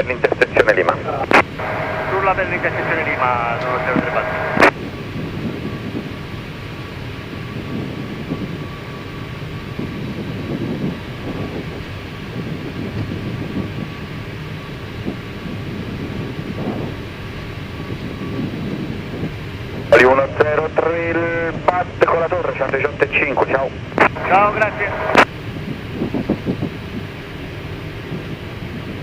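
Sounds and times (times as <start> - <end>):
aircraft engine rumble: 0.0 - 29.0
wheels rolling on taxiway: 4.0 - 19.9, 25.2 - 29.0.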